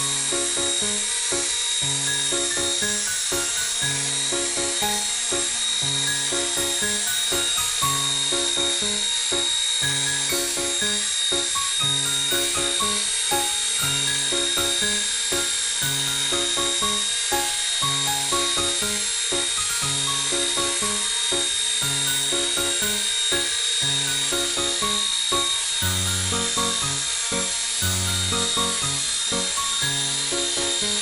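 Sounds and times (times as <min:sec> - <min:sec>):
toy helicopter motor whine: 0:00.0 - 0:31.0
background music: 0:02.2 - 0:31.0.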